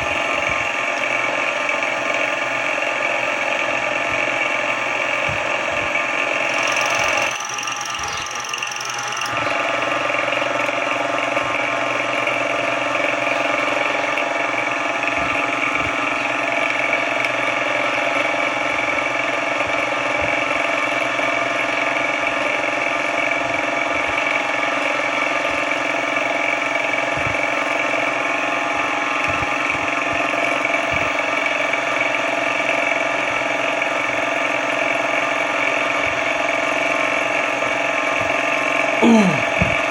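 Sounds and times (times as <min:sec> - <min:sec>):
mill drill whining: 0:00.0 - 0:31.4.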